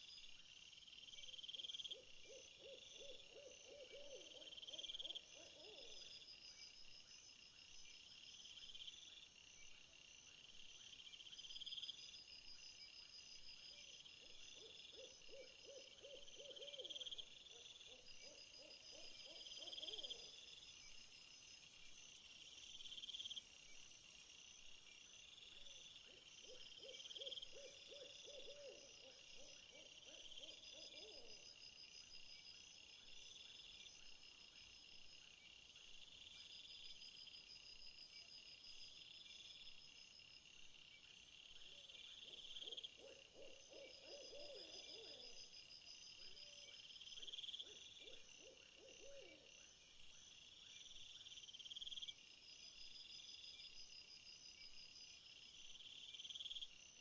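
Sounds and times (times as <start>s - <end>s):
crickets chirping: 0.0s - 57.0s
owl-like hoot: 1.9s - 6.0s, 14.6s - 17.1s, 18.9s - 20.2s, 26.4s - 31.4s, 42.6s - 45.4s, 48.0s - 49.5s.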